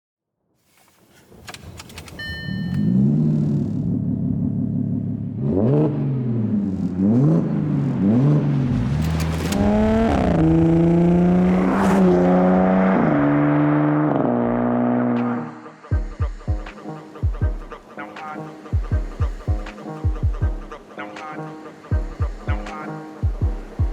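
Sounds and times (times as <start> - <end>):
car engine idling and revving: 0.9 - 15.8, 21.8 - 23.9.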